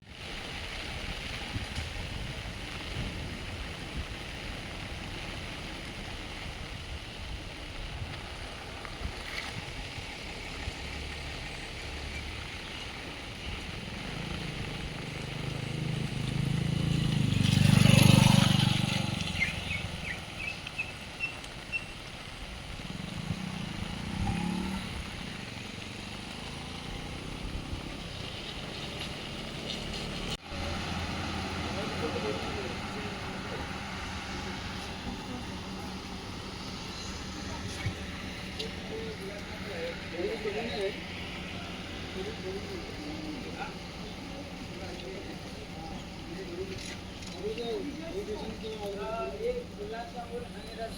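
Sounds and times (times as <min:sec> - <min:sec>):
steady rain falling: 0:00.0 - 0:50.9
vehicle passing: 0:13.4 - 0:20.9, 0:22.7 - 0:50.9.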